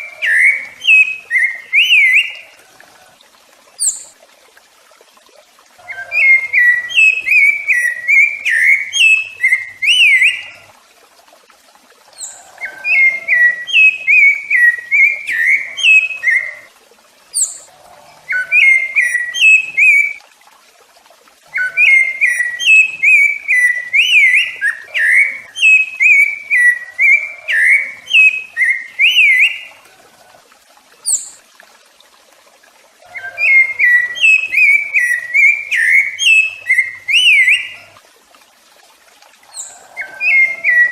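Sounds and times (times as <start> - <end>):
thrush singing fluting whistles: 0.0 - 2.5, 18.3 - 20.2, 21.5 - 29.7
thin high-pitched chirps: 3.8 - 4.1, 17.4 - 17.7.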